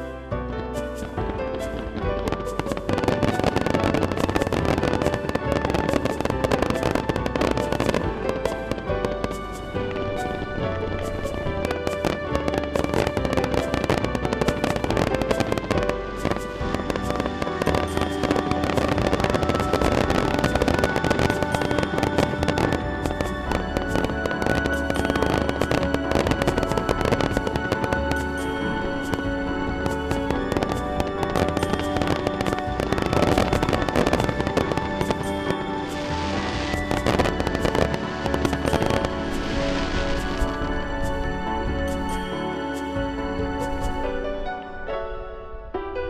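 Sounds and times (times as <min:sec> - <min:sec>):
background music: 0:00.0 - 0:46.0
fireworks bursting and crackling: 0:00.8 - 0:44.1.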